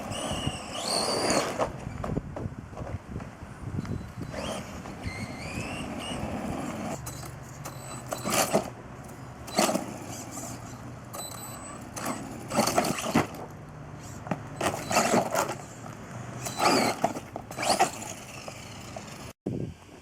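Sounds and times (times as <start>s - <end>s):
electric motor whine: 0.0s - 1.6s.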